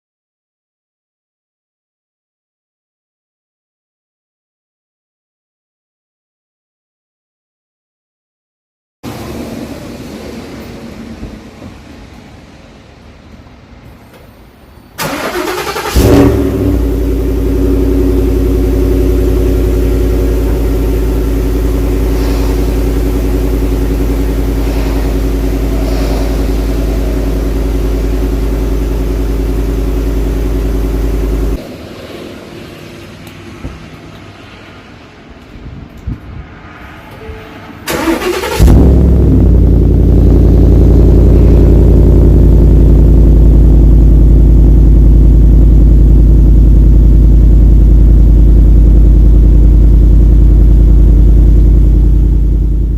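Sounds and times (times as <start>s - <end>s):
starter motor cranking: 15.0s - 16.1s
car engine revving and idling: 15.0s - 35.4s, 37.9s - 52.9s.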